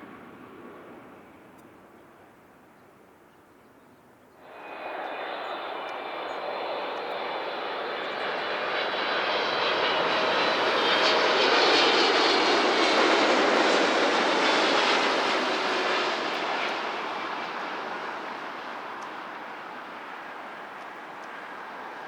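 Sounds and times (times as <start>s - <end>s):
jet airliner engines passing: 0.0s - 2.2s, 4.4s - 22.0s.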